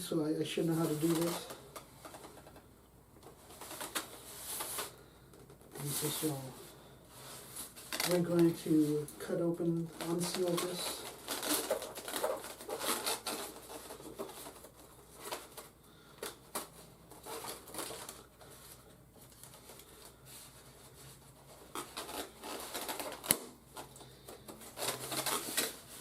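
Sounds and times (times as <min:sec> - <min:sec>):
cardboard scraping and rustling: 0:09.9 - 0:15.7, 0:16.5 - 0:26.0.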